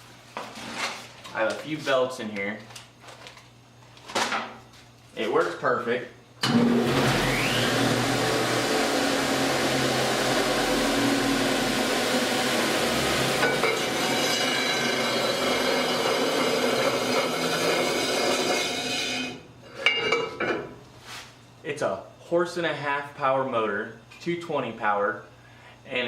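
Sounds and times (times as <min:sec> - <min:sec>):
sander motor humming and whining: 0:06.8 - 0:18.8.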